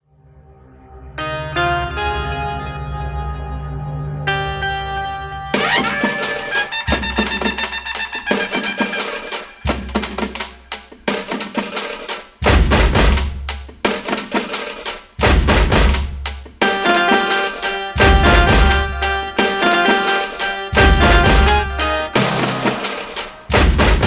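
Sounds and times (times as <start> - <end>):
music with drums and percussion: 5.6 - 24.0.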